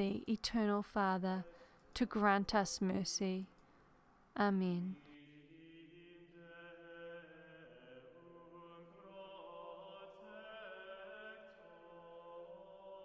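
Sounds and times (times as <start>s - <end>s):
faint choral chant: 5.0s - 13.0s.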